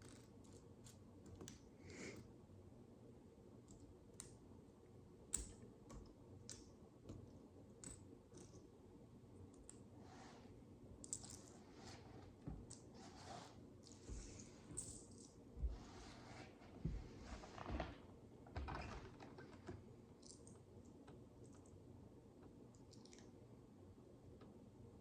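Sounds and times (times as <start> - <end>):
soft rustling of parts: 0.0 - 2.4, 3.5 - 21.8.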